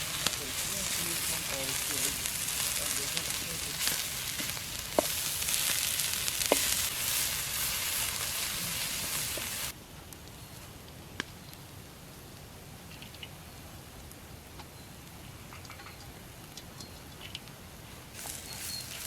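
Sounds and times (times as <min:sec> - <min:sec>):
food sizzling in hot oil: 0:00.0 - 0:09.8, 0:18.2 - 0:19.0.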